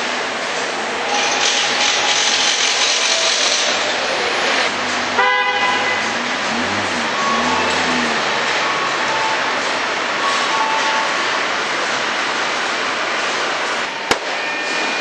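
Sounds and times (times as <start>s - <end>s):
short horn toot: 5.2s - 8.8s.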